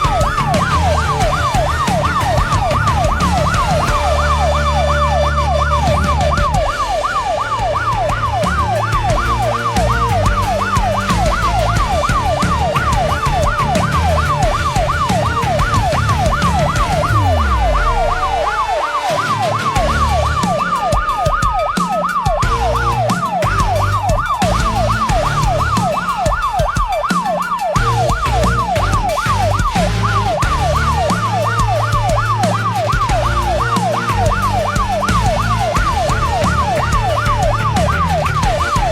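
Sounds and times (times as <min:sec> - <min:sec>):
siren wailing: 0:00.0 - 0:38.9
siren yelping: 0:00.0 - 0:38.9.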